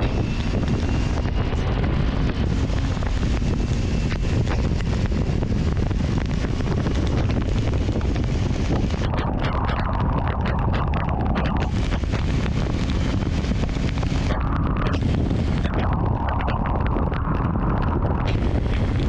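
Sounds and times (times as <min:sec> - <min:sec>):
steady low rumble: 0:00.0 - 0:19.0
wind buffeting microphone: 0:00.0 - 0:19.0
rain ticking: 0:09.0 - 0:19.0.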